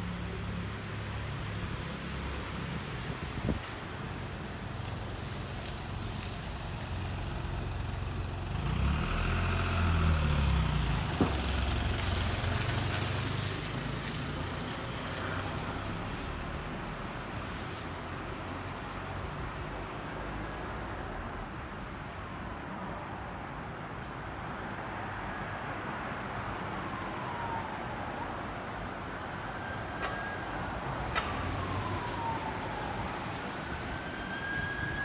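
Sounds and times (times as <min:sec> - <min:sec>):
city traffic noise: 0:00.0 - 0:35.0
large vehicle engine rumbling past: 0:05.4 - 0:17.2.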